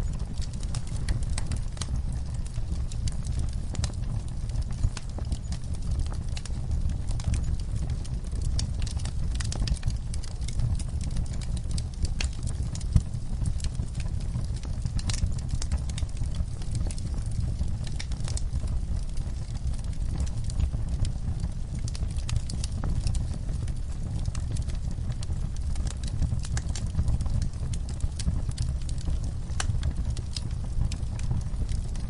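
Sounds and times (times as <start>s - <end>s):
campfire crackling and popping: 0.0s - 32.0s.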